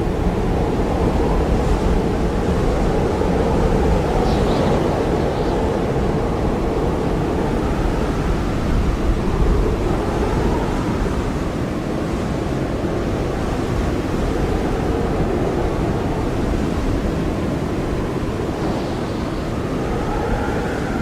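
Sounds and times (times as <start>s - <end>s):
howling blizzard wind: 0.0s - 21.0s.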